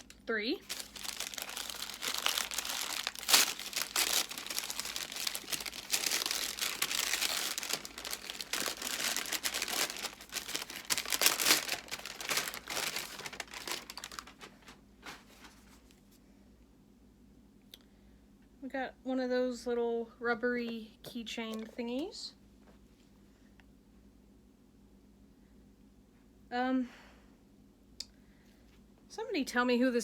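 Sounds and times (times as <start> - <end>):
packaging crinkling: 0.0 - 15.8.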